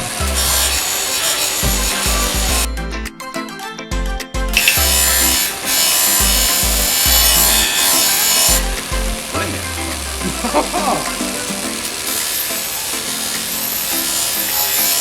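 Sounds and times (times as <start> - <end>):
background music with bass beat: 0.0 - 0.9, 1.6 - 14.4
abrasive rubbing on metal: 4.6 - 15.0.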